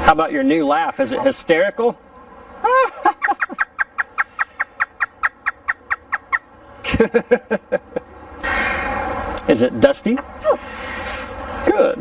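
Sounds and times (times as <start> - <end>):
parrot mimicking laughter: 2.6 - 6.4.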